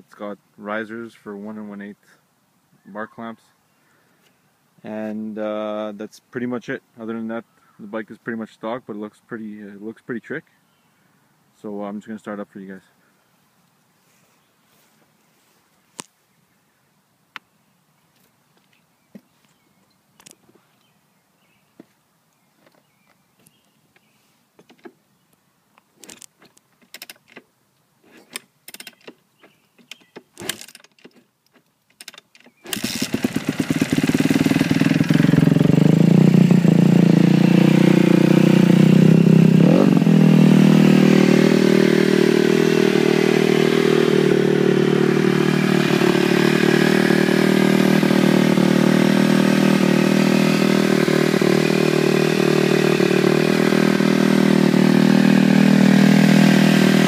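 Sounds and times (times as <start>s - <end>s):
motorcycle engine running: 32.7s - 57.0s.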